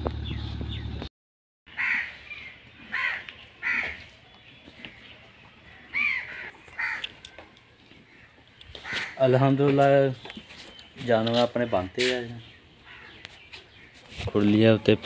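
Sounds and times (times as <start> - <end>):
bird cawing: 1.7 - 4.1, 5.7 - 9.5, 11.6 - 14.1.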